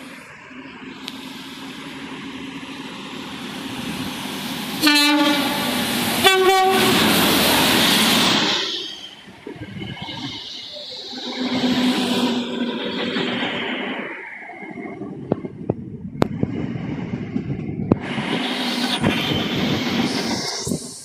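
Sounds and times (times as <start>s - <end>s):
train passing at speed: 0.0s - 21.0s
train horn: 4.8s - 7.2s.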